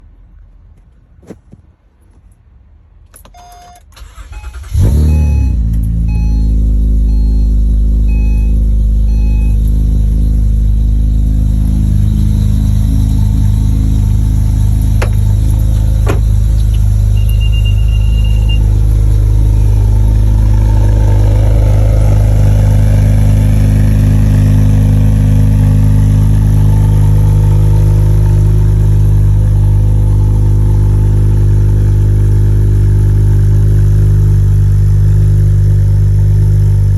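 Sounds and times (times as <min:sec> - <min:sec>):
short high beep: 0:03.4 - 0:20.3
car engine idling: 0:04.0 - 0:36.9
electronic chime beeps: 0:04.4 - 0:20.3.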